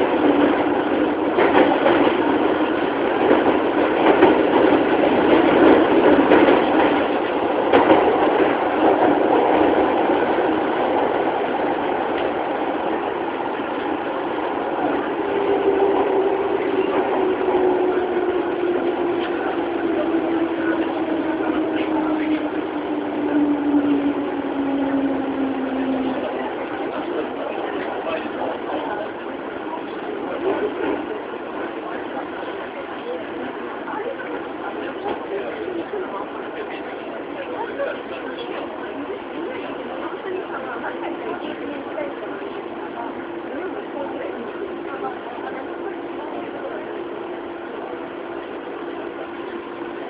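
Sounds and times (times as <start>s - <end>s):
rail joint clicks: 0.0s - 29.2s
wheels rumbling on rails: 0.0s - 50.0s.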